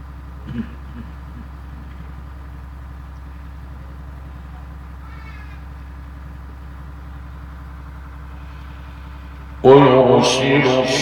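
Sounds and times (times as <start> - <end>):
high-pitched cry: 5.0 - 5.7.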